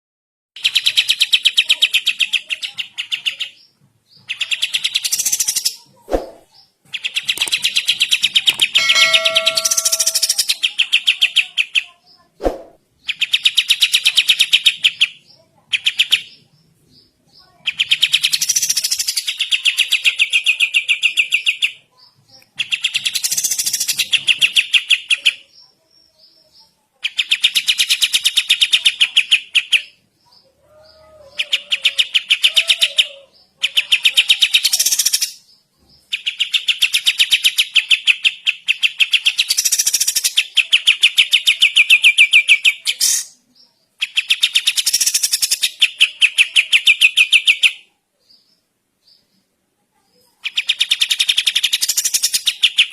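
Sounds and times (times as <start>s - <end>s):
songbird rapid chattering: 0.6s - 11.9s, 13.0s - 16.4s, 17.4s - 21.7s, 22.4s - 25.7s, 33.6s - 43.4s, 44.0s - 47.8s, 50.4s - 52.9s
sharp knock: 8.6s - 10.4s.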